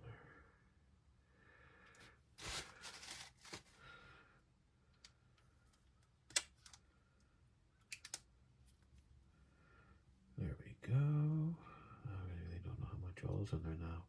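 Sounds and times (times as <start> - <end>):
parts rustling: 1.9 - 4.1.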